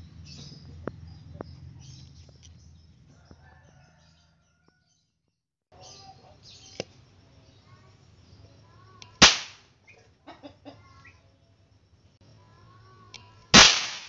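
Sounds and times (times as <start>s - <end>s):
small birds chirping: 0.0s - 5.1s, 5.7s - 13.6s
sharp click: 9.0s - 9.6s.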